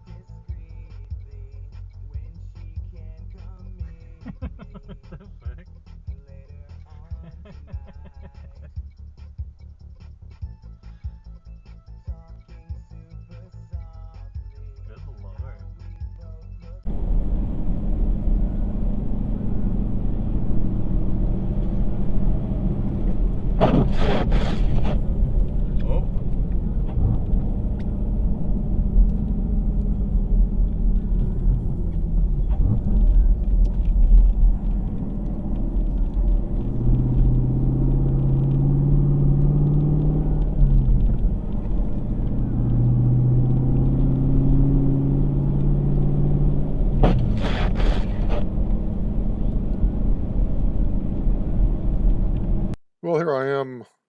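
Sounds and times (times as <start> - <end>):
road rumble: 13.0 - 52.8.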